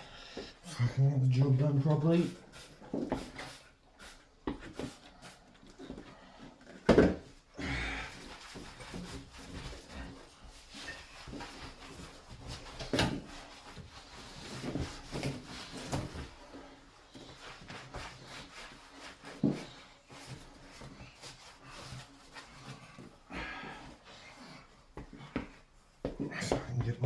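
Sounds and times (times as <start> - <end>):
knocks of objects being handled: 5.8 - 7.4
shuffling and rustling: 8.1 - 27.0.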